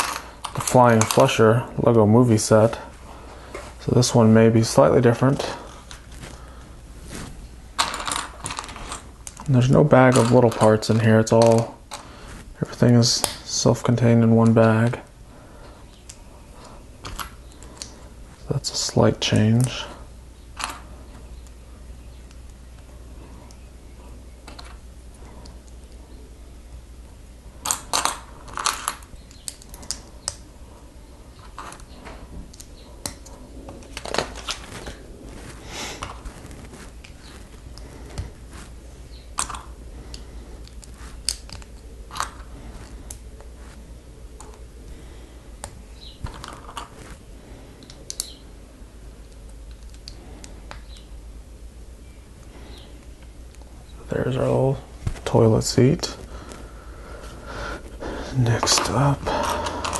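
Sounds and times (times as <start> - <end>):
steady low hum: 0.0 - 59.9
plastic pieces clicking: 27.6 - 30.4, 39.4 - 42.5, 47.8 - 48.4, 49.2 - 51.1, 58.7 - 59.9.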